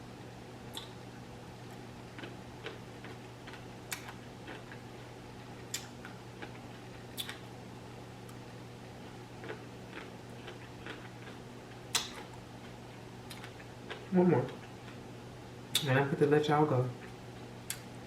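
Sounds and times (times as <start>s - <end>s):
steady low hum: 0.0s - 18.0s
wet mouth clicks from chewing: 0.7s - 1.0s, 2.2s - 4.8s, 7.2s - 7.4s, 9.4s - 12.3s, 13.3s - 15.0s.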